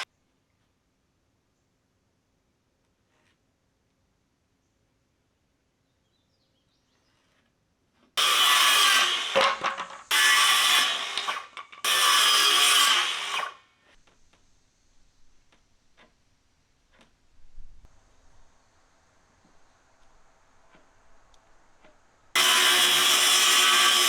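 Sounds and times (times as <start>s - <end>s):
power tool cutting wood: 8.2s - 13.6s, 22.4s - 24.0s.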